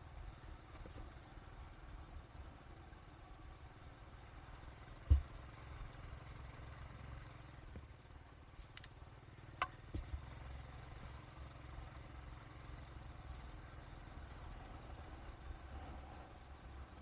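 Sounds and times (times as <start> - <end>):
vehicle rumble: 0.0 - 17.0
small knocks: 9.6 - 10.2.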